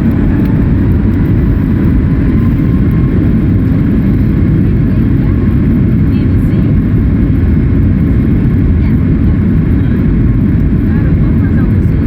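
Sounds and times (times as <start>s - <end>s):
jet engines at high thrust: 0.0s - 12.0s
rough low rumble: 0.0s - 12.0s.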